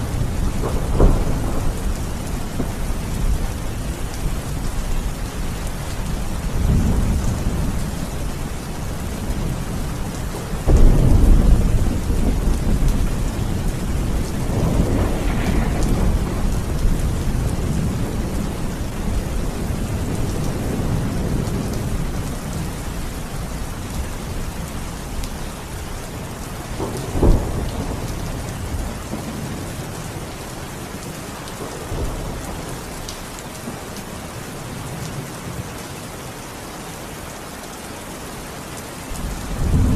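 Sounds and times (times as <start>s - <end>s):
sharp thunderclap: 0.0s - 4.0s, 10.6s - 22.2s, 26.8s - 30.0s, 39.5s - 39.9s
thunder rumbling: 0.0s - 35.8s, 39.1s - 39.9s
steady rain: 0.0s - 39.9s.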